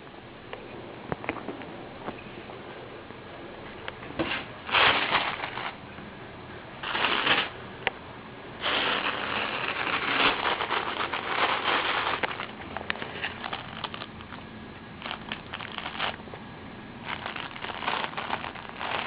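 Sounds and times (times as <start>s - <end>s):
kitten rustling and scratching: 4.2s - 5.8s, 6.8s - 7.6s, 8.6s - 14.4s, 15.0s - 16.3s, 17.0s - 19.0s.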